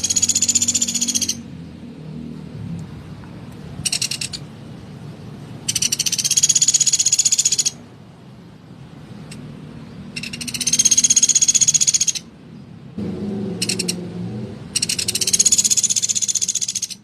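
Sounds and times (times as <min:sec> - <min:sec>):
woodpecker rattling trills: 0:00.0 - 0:01.5, 0:03.8 - 0:04.4, 0:05.6 - 0:07.8, 0:10.1 - 0:12.3, 0:13.6 - 0:14.0, 0:14.7 - 0:17.0.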